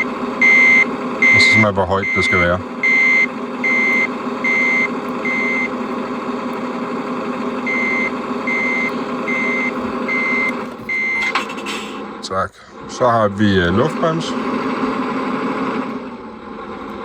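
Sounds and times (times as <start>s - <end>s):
high reversing beeps: 0.0s - 5.8s, 7.6s - 11.3s
idling engine sound: 0.0s - 17.0s.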